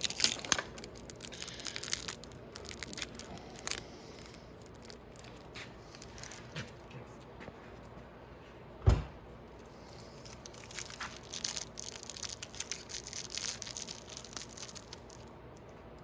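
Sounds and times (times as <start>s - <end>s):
plastic bag crinkling: 0.0s - 6.6s, 9.8s - 15.7s
dull thump: 8.8s - 9.2s.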